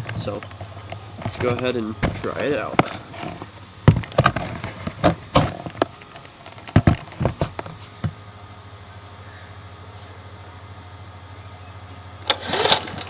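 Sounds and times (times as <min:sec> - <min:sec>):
knocks and clunks of mower: 0:00.0 - 0:08.2, 0:12.2 - 0:13.0
mower engine running: 0:00.0 - 0:13.0.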